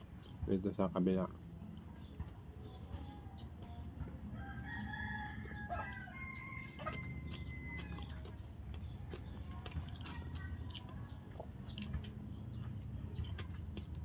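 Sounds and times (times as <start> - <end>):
small birds chirping: 0.0 - 14.0
rooster crowing: 4.4 - 8.0.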